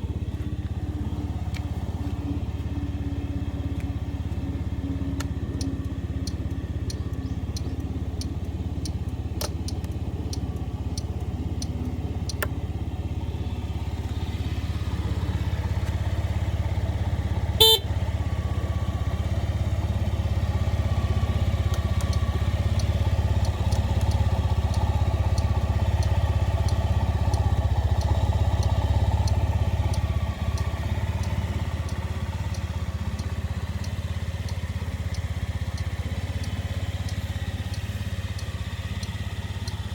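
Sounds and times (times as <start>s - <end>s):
scooter engine idling: 0.0s - 39.9s
short horn beep: 17.6s - 18.0s.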